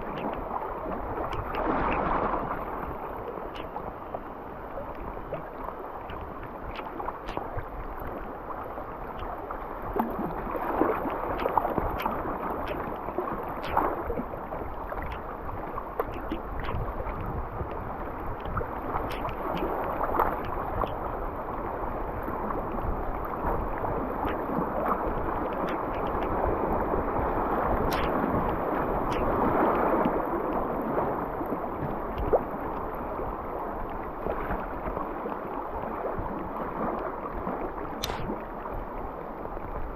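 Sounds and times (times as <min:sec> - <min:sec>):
river water splashing around kayak: 0:00.0 - 0:39.9
sharp knocks or drips: 0:38.0 - 0:38.3.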